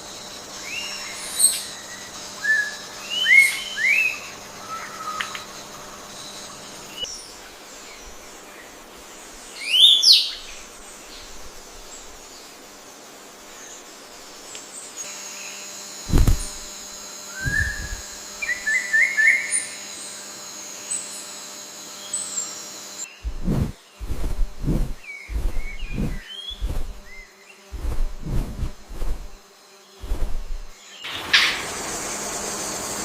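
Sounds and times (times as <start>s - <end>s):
steady high hiss: 0.0s - 15.1s, 15.8s - 18.6s
low thumps: 16.1s - 16.7s, 17.4s - 18.0s, 23.2s - 27.2s, 27.8s - 29.4s, 30.0s - 30.8s
bird whistled call: 17.4s - 17.8s
short bird chirps: 17.4s - 18.0s.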